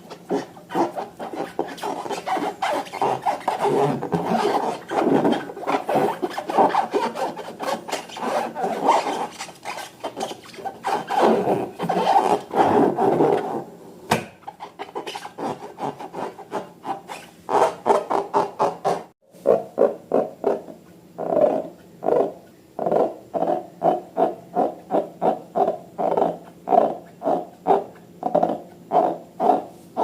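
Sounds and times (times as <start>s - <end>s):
balloons and slime rubbed by hand: 0.0s - 13.7s.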